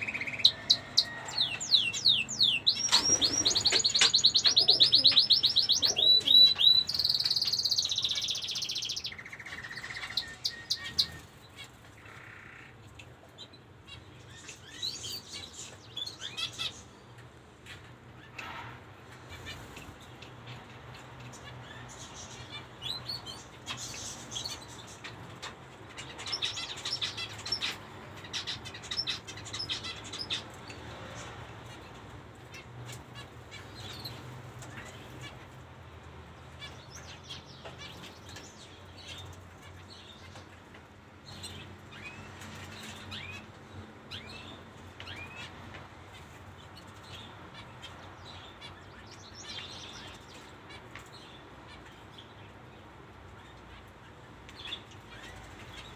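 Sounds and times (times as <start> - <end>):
finches chirping: 0.0 - 11.4.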